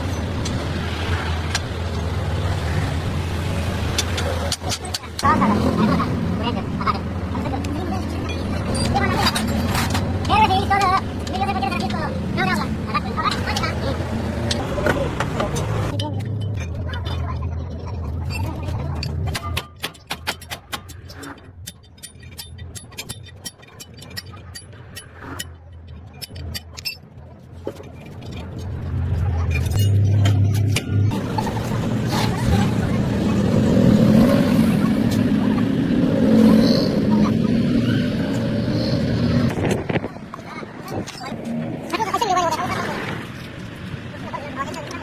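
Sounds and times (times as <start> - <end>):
tools clinking against metal: 18.2 - 31.5.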